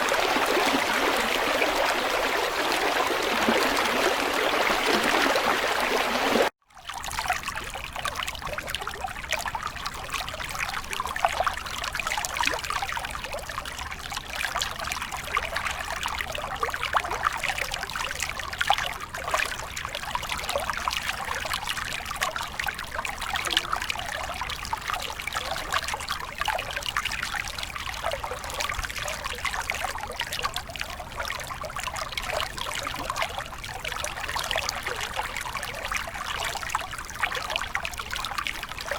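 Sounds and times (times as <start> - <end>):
water rushing: 0.0 - 6.5
stream water trickling: 0.0 - 38.9.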